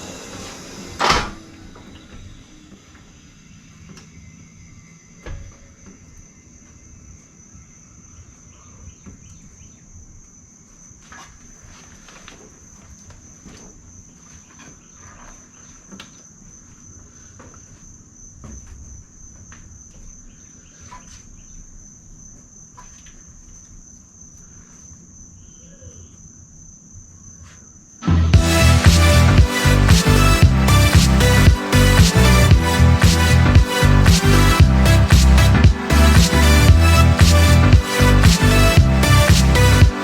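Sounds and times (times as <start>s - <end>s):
insects trilling: 3.4s - 28.0s
music: 28.0s - 40.0s
low rumble: 28.1s - 39.9s.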